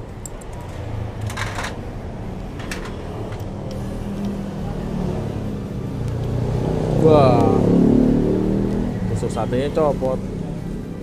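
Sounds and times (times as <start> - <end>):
vehicle engine droning: 0.0 - 11.0
metal parts clicking: 0.2 - 1.8, 2.5 - 3.5.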